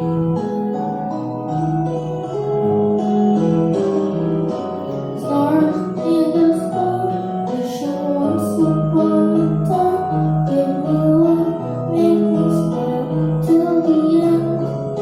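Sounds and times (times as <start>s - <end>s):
young person singing: 5.1s - 15.0s.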